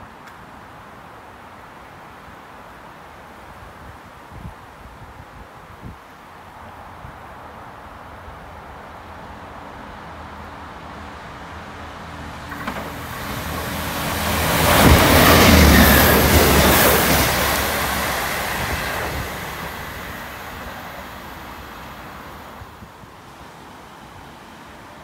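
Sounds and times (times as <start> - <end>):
train wheels rumbling on rails: 12.2 - 22.6.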